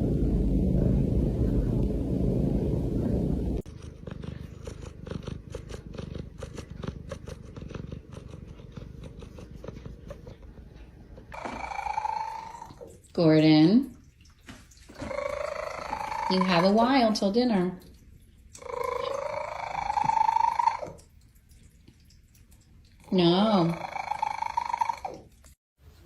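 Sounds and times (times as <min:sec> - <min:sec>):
cat purring: 0:00.0 - 0:12.9, 0:15.0 - 0:17.0, 0:18.6 - 0:21.0, 0:23.1 - 0:25.3.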